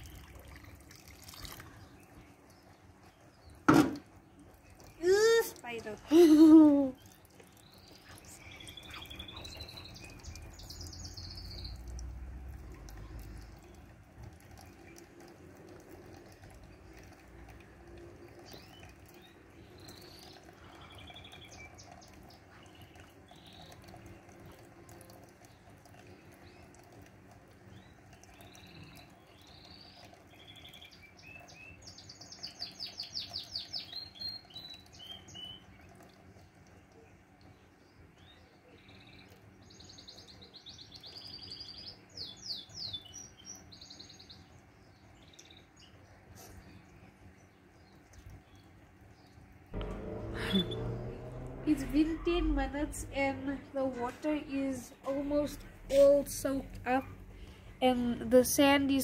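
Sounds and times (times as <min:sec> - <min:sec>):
small birds chirping: 0:00.0 - 0:59.0
low rumble: 0:49.8 - 0:58.4.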